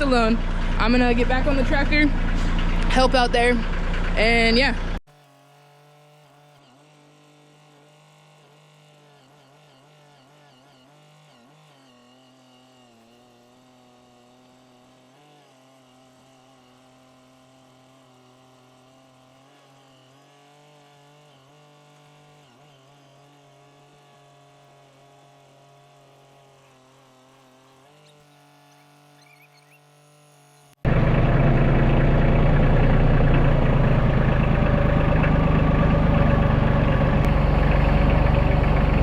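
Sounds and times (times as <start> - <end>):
heavy equipment engine running: 0.0 - 5.0, 30.9 - 39.0.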